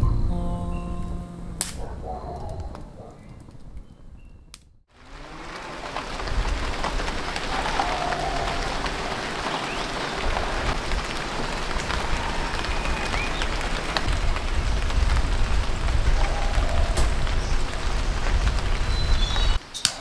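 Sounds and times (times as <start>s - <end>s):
steady rain falling: 4.9s - 19.7s.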